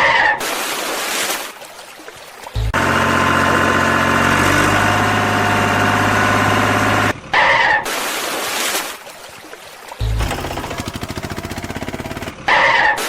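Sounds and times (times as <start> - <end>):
vehicle engine running: 10.2 - 12.5.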